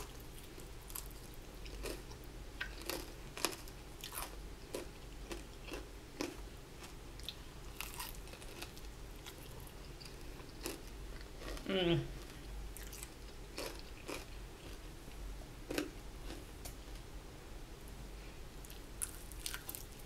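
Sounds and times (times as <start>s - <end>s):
crunching fried coating: 0.0s - 11.6s.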